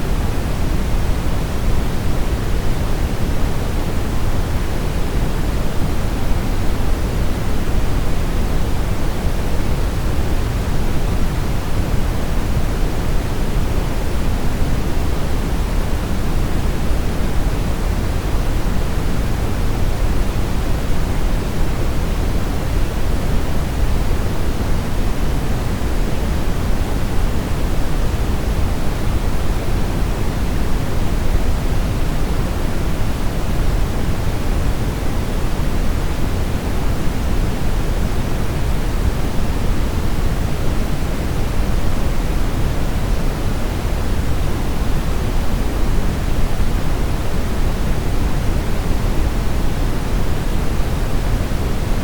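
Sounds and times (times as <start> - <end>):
steady brown noise: 0.0 - 52.0.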